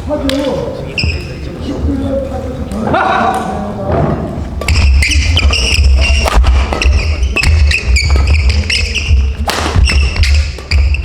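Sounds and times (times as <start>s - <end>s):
court shoes squeaking: 0.4s - 1.5s, 4.2s - 11.0s
racket hitting shuttlecock: 4.6s - 11.0s.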